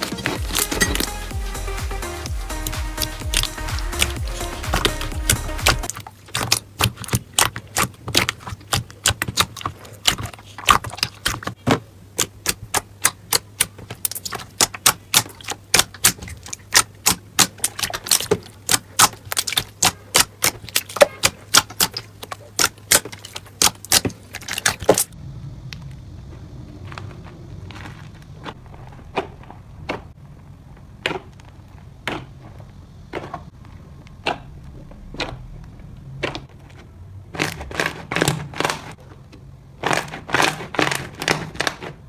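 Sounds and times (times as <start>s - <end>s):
slime crackling pops: 2.6s - 11.5s, 12.2s - 25.2s.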